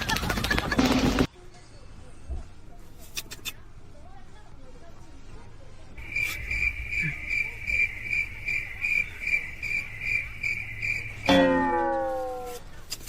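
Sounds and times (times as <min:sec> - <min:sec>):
cricket chirping: 0:06.0 - 0:11.4.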